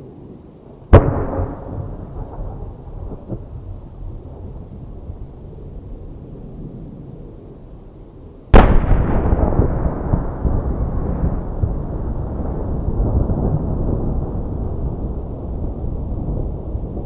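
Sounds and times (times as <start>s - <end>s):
firework bursts: 0.9s - 3.8s
low rolling rumble of echo: 0.9s - 17.0s
firework shell bang: 1.0s - 3.4s, 8.6s - 9.6s.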